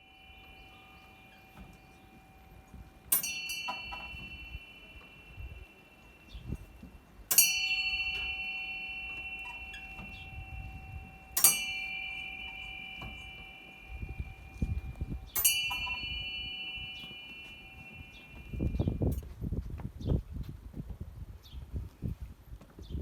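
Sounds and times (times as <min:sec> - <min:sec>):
metal bell ringing: 0:00.0 - 0:19.2.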